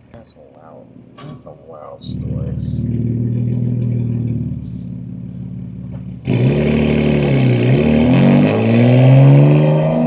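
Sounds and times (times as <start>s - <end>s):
car engine and exhaust revving: 0.0s - 10.0s.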